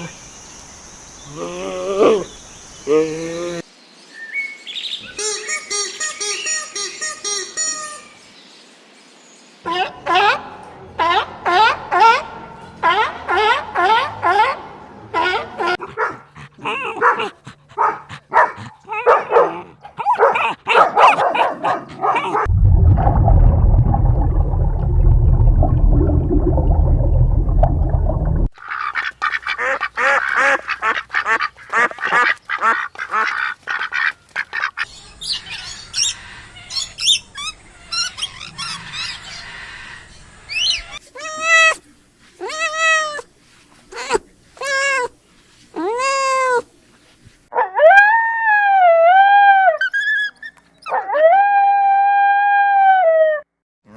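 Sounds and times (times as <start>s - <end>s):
loud low rumble: 22.5s - 28.5s
ducks quacking: 28.6s - 34.9s
cat meowing: 42.4s - 43.2s, 45.8s - 46.6s.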